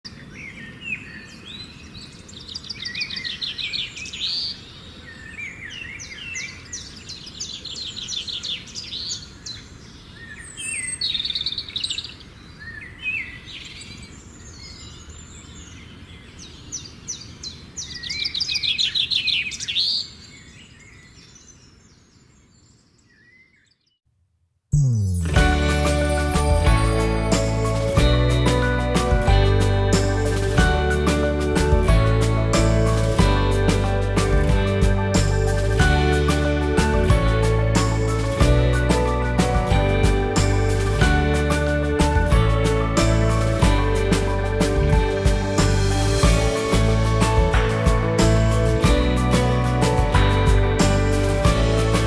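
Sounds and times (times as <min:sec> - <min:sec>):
birds singing and chirping: 0:00.1 - 0:24.0.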